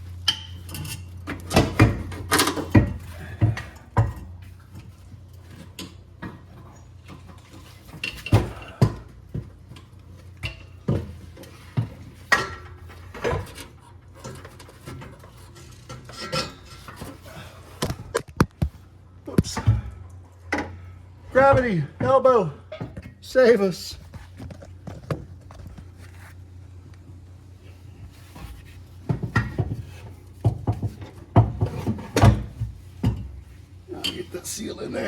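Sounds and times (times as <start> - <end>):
steady low hum: 0.0 - 35.0
metal clanks and knocks: 0.2 - 18.7, 28.4 - 34.3.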